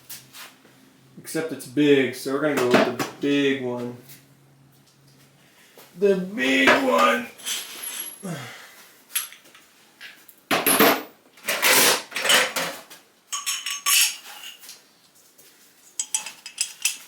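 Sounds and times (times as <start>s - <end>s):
metal tools clinking and rattling: 7.0s - 8.2s, 9.1s - 9.4s, 13.3s - 14.7s, 16.0s - 17.0s.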